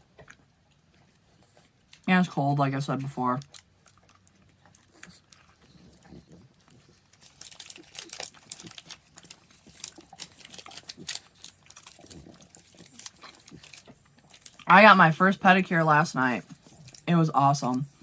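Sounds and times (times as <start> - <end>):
chewing with wet mouth smacks: 0.0 - 2.1, 3.4 - 14.7, 16.4 - 17.1.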